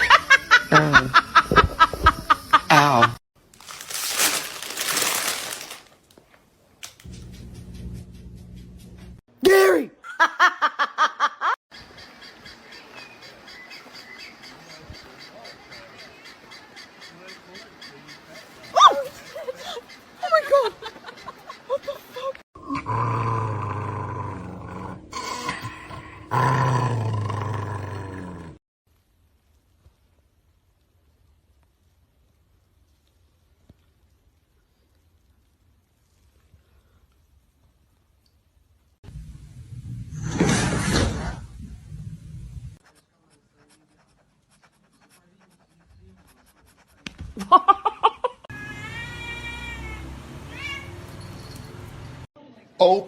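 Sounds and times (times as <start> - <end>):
animal roaring: 22.6 - 28.6
cat meowing: 48.5 - 51.2.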